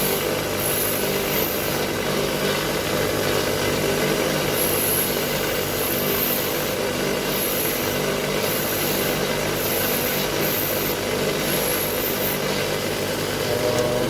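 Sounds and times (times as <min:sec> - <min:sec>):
wire brush grinder scrubbing: 0:00.0 - 0:02.3, 0:03.9 - 0:12.8.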